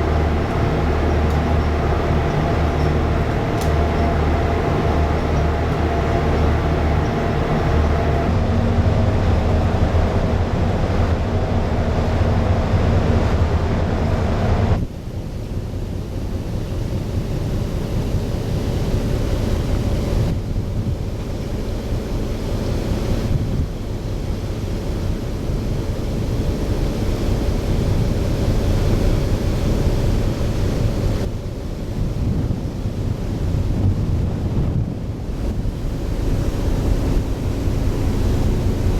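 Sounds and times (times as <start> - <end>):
low even rumble: 0.0 - 18.6
heavy machinery drone: 0.0 - 31.3, 32.0 - 38.9
wind on microphone: 30.7 - 38.9.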